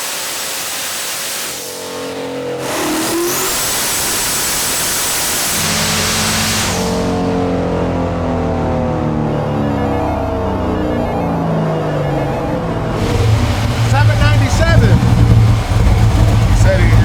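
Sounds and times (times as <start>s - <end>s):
high turbo whistle: 0.0s - 8.0s, 11.8s - 17.0s
car engine at full throttle: 0.0s - 17.0s
steady pitched tones: 1.7s - 17.0s.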